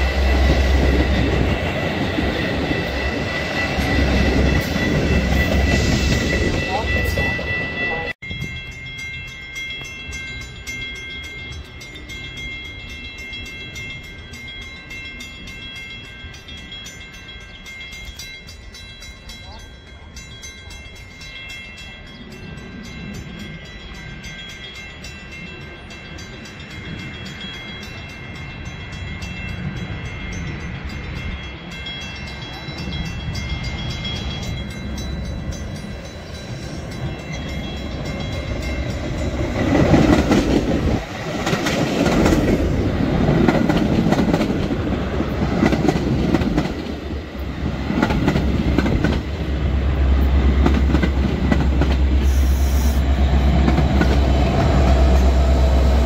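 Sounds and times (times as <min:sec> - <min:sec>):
diesel locomotive engine rumble: 0:00.0 - 0:56.0
railroad crossing bell ringing: 0:00.0 - 0:56.0
train wheels clattering: 0:33.8 - 0:49.5.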